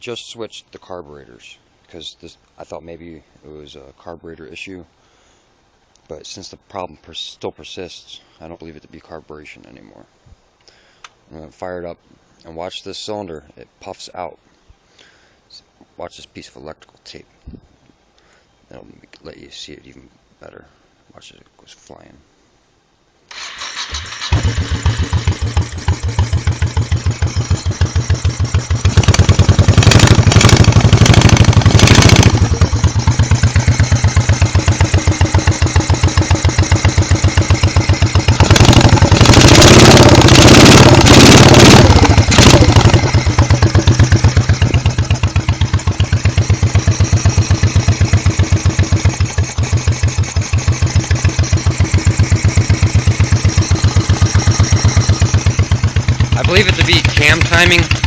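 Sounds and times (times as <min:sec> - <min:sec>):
engine backfiring through carburetor: 0:23.3 - 0:58.0
motorcycle engine revving: 0:23.3 - 0:58.0.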